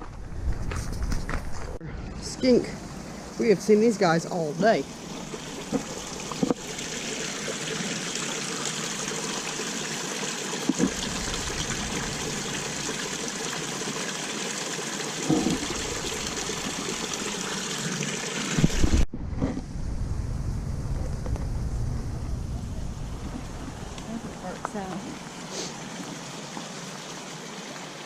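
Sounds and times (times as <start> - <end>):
running water trickling: 2.0 - 19.1, 21.2 - 28.0
low rumble: 10.9 - 13.5, 18.6 - 24.8.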